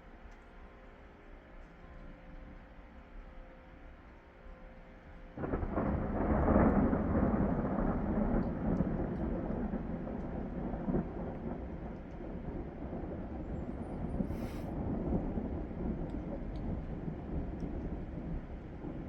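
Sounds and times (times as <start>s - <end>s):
thunder rumbling: 5.4s - 19.0s.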